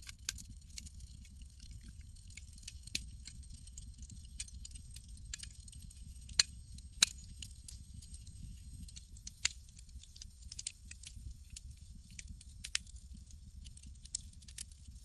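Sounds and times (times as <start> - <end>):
campfire crackling: 0.1 - 15.0.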